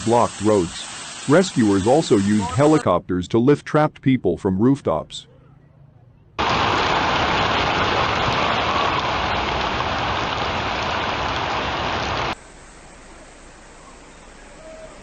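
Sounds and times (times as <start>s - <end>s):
heavy rain pouring: 0.0s - 2.8s, 6.4s - 13.8s
quiet wash of running water: 0.0s - 2.8s, 6.4s - 15.0s.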